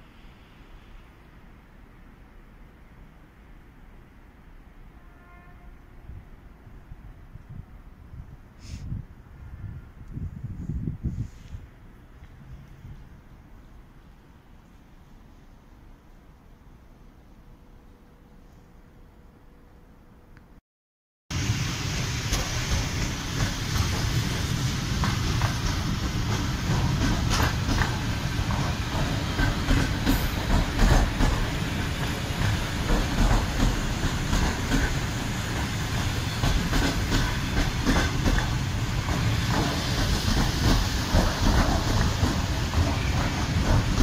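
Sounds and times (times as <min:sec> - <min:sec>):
train rumbling past: 0:21.3 - 0:44.0.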